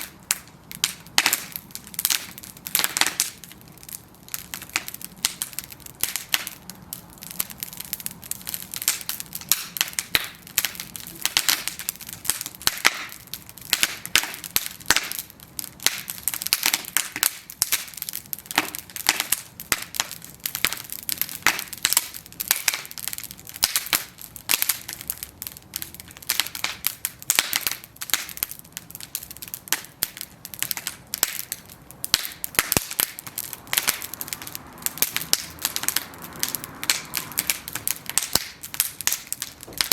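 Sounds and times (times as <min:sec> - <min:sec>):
wood crackling and popping: 0:00.0 - 0:39.9
soft hiss of flame: 0:30.2 - 0:39.9.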